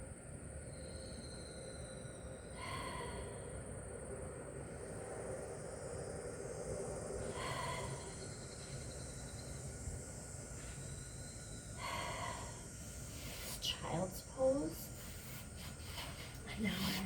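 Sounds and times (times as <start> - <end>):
outdoor background hiss: 0.0 - 17.0
person exhaling: 7.3 - 8.1.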